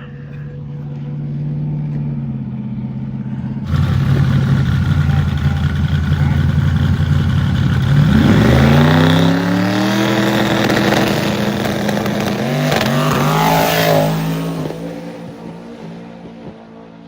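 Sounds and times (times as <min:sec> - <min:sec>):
drag race car accelerating: 0:03.6 - 0:17.0.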